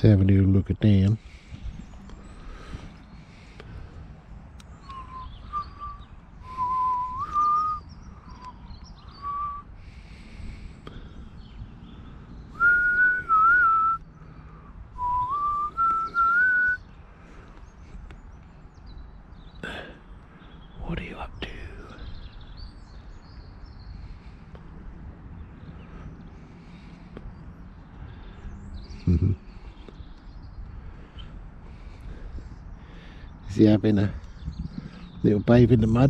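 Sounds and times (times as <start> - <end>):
person whistling a slow tune: 4.8 - 9.7, 12.6 - 14.0, 15.0 - 16.8.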